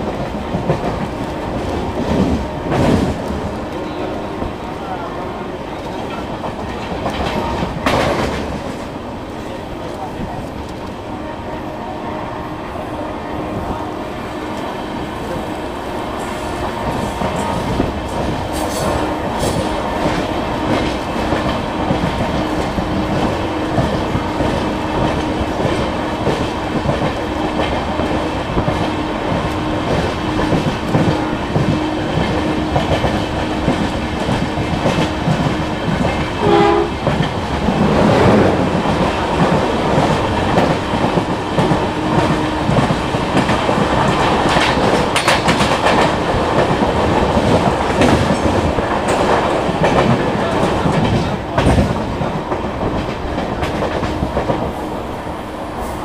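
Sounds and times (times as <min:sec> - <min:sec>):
train wheels clicking on rails: 0:00.0 - 0:11.1, 0:13.6 - 0:56.0
train horn: 0:11.0 - 0:14.9, 0:36.4 - 0:37.2.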